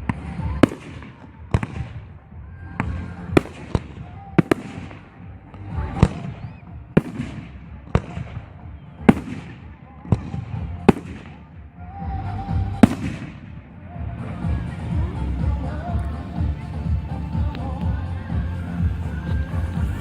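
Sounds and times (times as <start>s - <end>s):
fireworks bursting: 0.0s - 13.7s.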